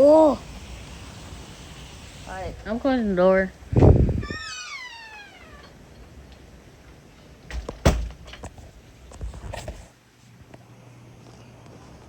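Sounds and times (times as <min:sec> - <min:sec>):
cat meowing: 0:04.2 - 0:05.8.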